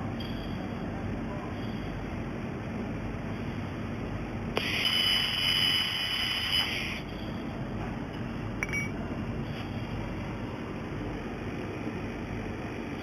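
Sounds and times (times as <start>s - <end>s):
steady low hum: 0.0s - 13.0s
welding machine whine and hiss: 1.5s - 8.4s, 9.3s - 13.0s.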